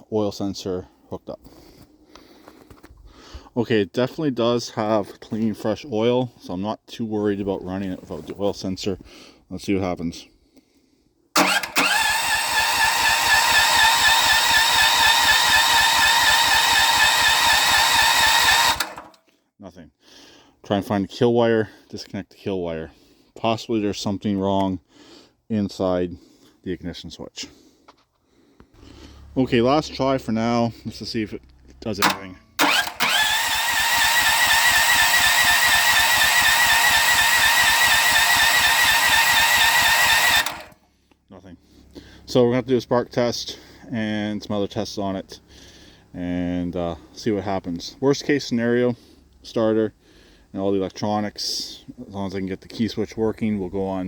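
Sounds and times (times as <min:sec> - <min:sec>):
electric starter cranking engine: 0:11.4 - 0:19.2, 0:32.0 - 0:40.8.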